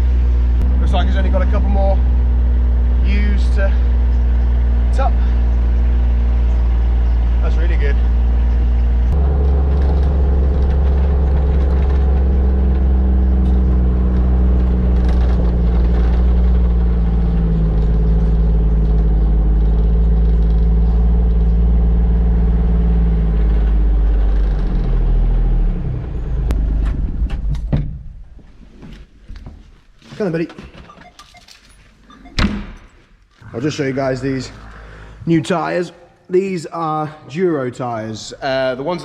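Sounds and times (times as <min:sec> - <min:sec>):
diesel engine running: 0:00.0 - 0:27.6
knocks and clunks: 0:26.5 - 0:33.4.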